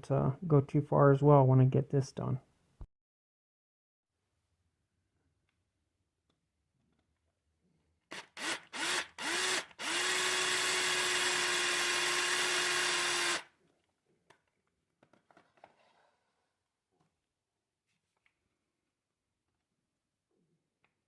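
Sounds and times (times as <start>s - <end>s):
electric drill spinning: 8.1s - 13.5s.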